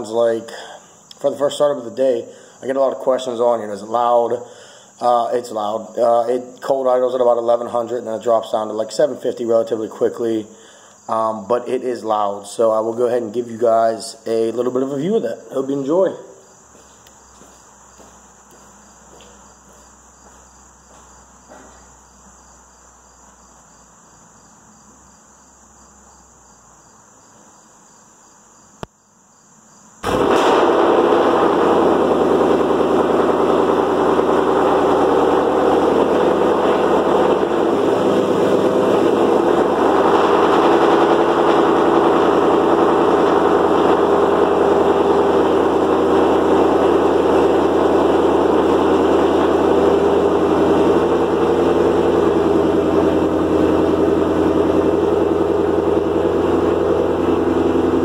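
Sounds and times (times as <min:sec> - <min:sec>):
insects chirping: 0:00.0 - 0:30.1
car engine cold start and idle: 0:30.0 - 0:58.0.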